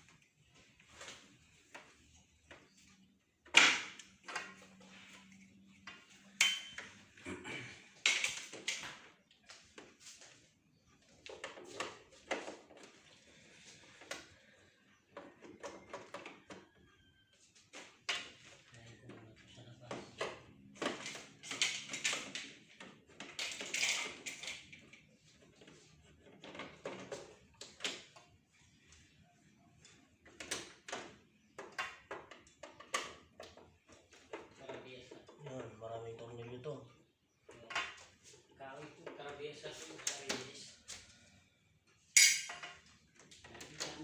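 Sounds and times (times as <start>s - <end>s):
clicks and knocks of handled parts: 0.9s - 7.2s, 8.0s - 9.9s, 19.8s - 28.4s, 29.8s - 35.4s, 41.9s - 44.0s.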